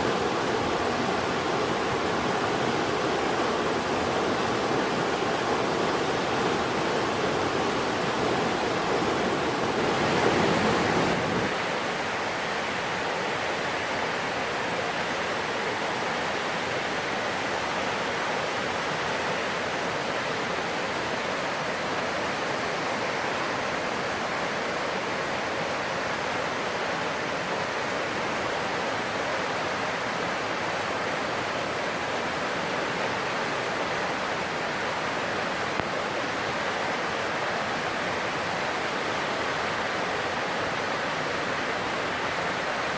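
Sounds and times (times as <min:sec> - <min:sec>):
stream rushing over rocks: 0:00.0 - 0:42.9.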